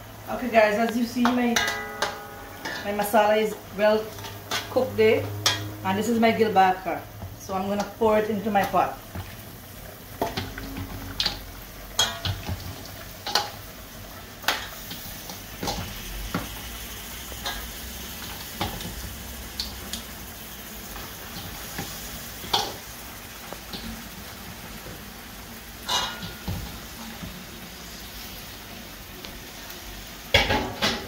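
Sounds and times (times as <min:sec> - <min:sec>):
metal spoon clinking on pot: 0:01.6 - 0:02.9
fish sizzling in curry paste: 0:08.9 - 0:30.6.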